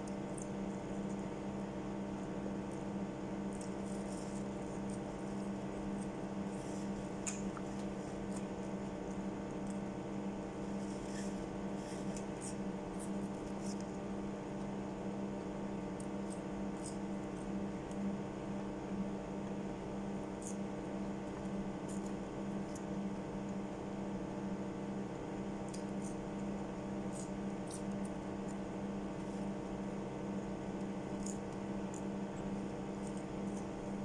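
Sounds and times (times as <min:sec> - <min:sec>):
steady electrical hum: 0:00.0 - 0:34.0.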